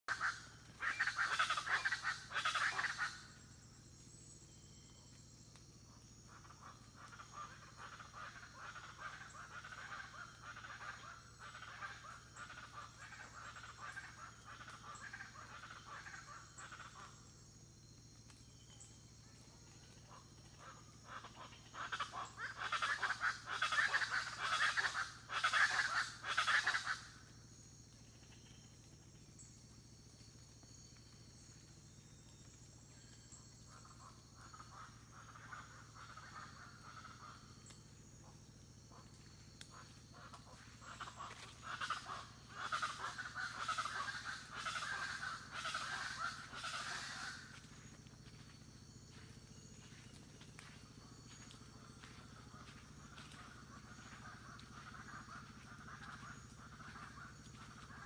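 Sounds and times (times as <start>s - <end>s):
high insect drone: 0.1s - 58.0s
loud harsh bird calls: 39.7s - 47.8s.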